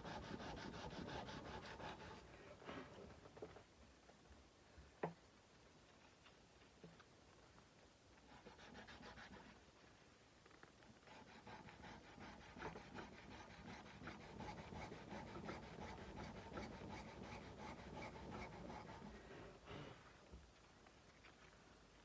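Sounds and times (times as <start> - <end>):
sandpaper rubbing on steel blade: 0.0 - 2.2, 11.2 - 19.1.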